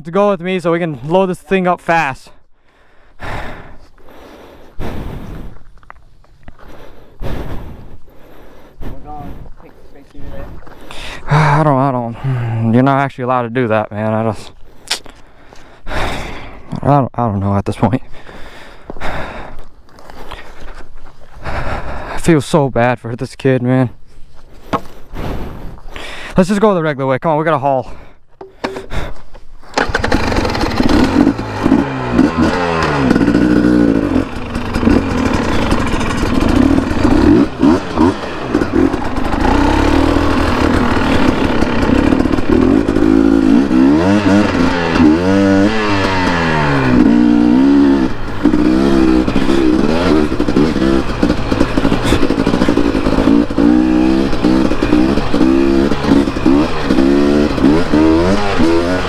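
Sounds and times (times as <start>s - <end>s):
dirt bike engine revving: 29.7s - 59.0s.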